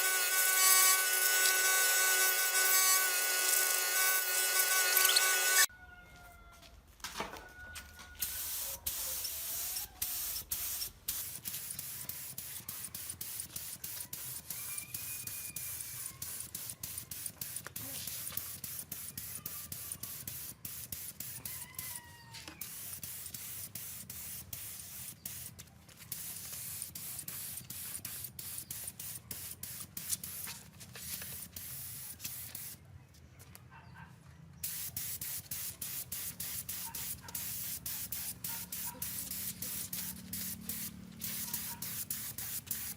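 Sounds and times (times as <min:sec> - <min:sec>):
spray hissing onto metal parts: 0:08.2 - 0:21.4, 0:22.6 - 0:32.8, 0:34.6 - 0:42.9.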